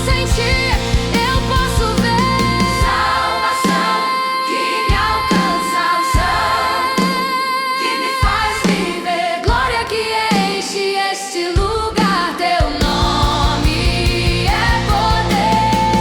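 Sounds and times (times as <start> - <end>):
low drum beat: 0.0 - 3.2, 12.6 - 16.0
band playing worship music: 0.0 - 10.5, 12.0 - 16.0
choir singing held notes: 2.3 - 16.0.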